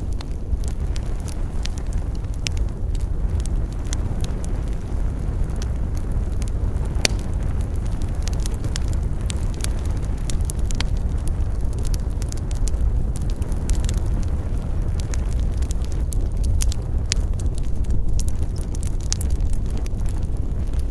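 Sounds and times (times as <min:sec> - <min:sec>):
campfire crackling: 0:00.0 - 0:20.9.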